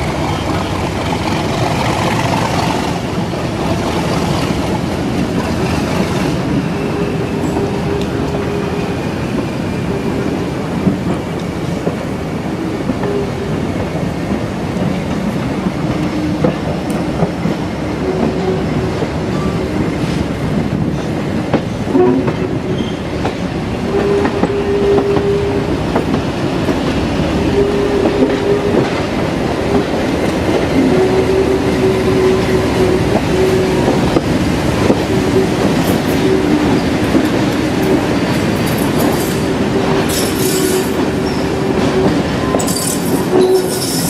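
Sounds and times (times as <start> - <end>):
diesel train rumbling: 0.0 - 44.0
rail joints clicking: 0.0 - 44.0.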